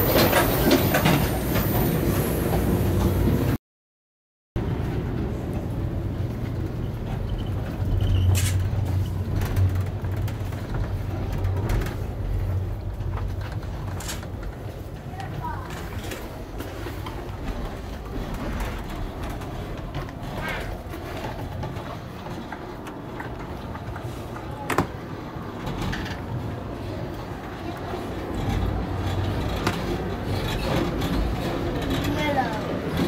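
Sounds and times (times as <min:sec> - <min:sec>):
train car rumbling over track: 0:00.0 - 0:03.6, 0:04.6 - 0:33.0
rattles and knocks: 0:06.4 - 0:26.7, 0:27.6 - 0:33.0.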